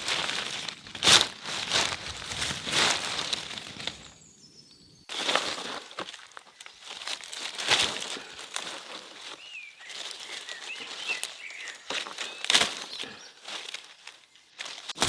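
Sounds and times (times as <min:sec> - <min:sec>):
rustling and scraping: 0:00.0 - 0:04.2, 0:05.1 - 0:15.0
small bird chirping: 0:02.1 - 0:05.2, 0:09.2 - 0:14.6.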